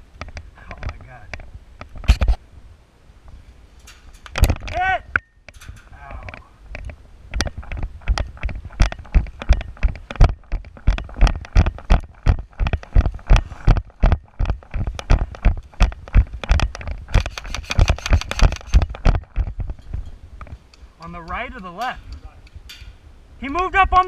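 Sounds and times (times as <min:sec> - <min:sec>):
gear scraping: 0:05.6 - 0:22.9.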